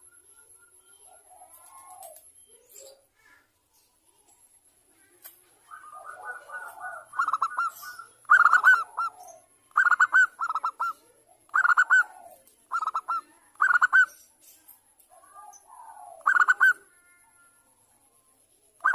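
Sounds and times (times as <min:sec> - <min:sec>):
dove cooing: 0:00.0 - 0:03.0, 0:05.6 - 0:14.2, 0:15.1 - 0:17.0.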